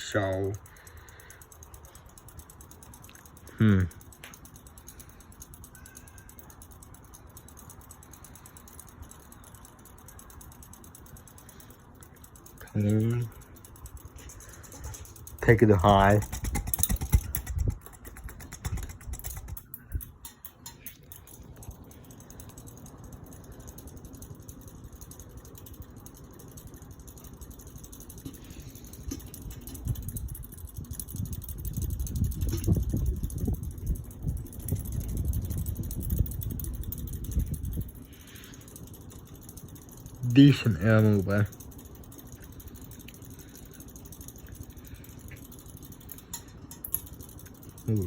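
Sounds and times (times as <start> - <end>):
ceiling fan running: 0.0 - 48.0
wind buffeting microphone: 14.8 - 20.2, 29.4 - 38.2.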